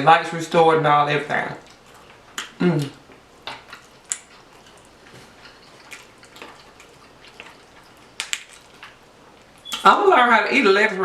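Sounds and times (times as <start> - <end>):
wet chewing and mouth smacks: 1.6 - 9.9.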